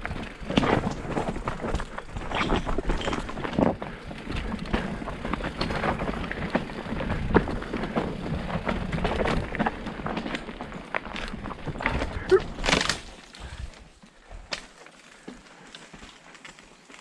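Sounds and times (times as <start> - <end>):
wind rumble on microphone: 0.0 - 10.4
bike parts rattling: 0.0 - 15.3
bike tyres rolling over rocks: 0.0 - 17.0
stones clicking and knocking: 0.1 - 5.8.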